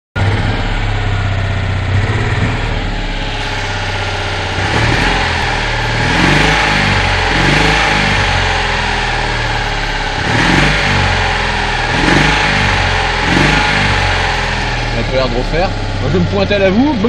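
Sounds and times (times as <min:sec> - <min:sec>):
car engine revving: 0:00.2 - 0:17.0.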